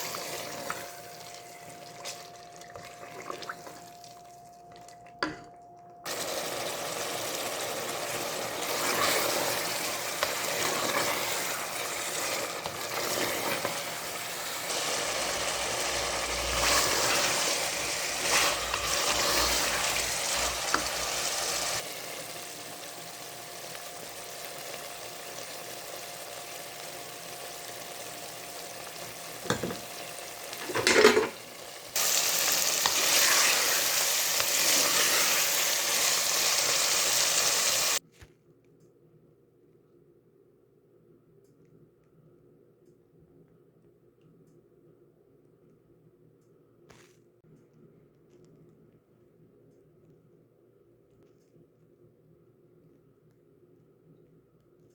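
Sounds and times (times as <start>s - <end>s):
meat sizzling in a pan: 6.1s - 38.0s.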